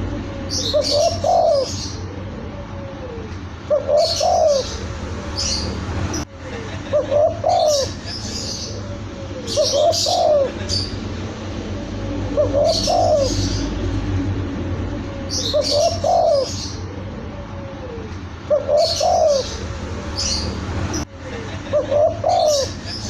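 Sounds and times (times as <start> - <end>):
dove cooing: 0.0 - 5.8, 6.5 - 14.0, 15.0 - 20.5, 21.4 - 23.0.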